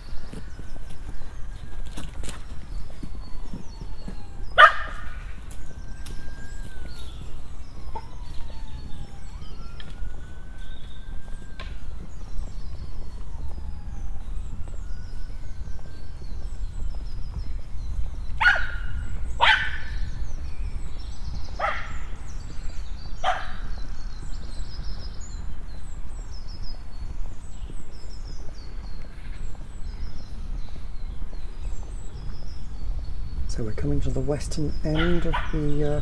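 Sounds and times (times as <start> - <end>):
small birds chirping: 0.0 - 36.0
dog barking: 4.6 - 5.0, 18.4 - 18.8, 19.4 - 20.0, 21.6 - 22.0, 23.2 - 23.6, 35.0 - 35.8
steady low rumble: 23.8 - 36.0.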